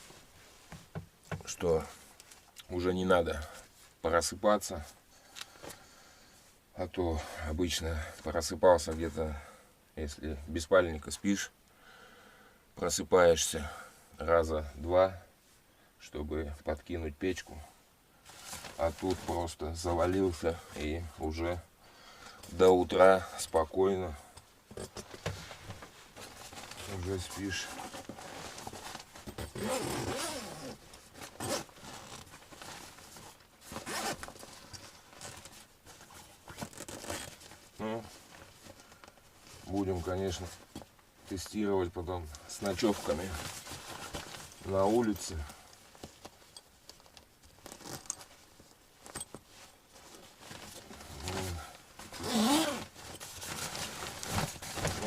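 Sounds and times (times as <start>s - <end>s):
fabric rustling: 18.2s - 21.2s, 24.6s - 55.0s
zipper being pulled: 29.4s - 32.2s, 33.8s - 34.3s, 52.1s - 53.0s.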